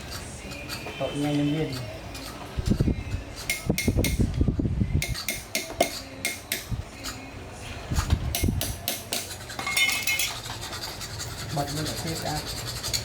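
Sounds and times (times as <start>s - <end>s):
metal objects clinking: 9.5s - 10.6s.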